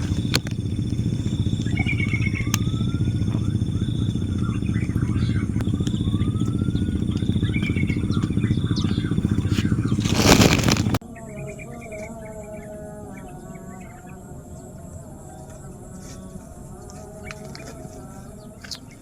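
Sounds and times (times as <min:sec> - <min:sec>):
brief chirping calls: 0:00.0 - 0:10.5
small motorcycle engine running: 0:00.0 - 0:11.0.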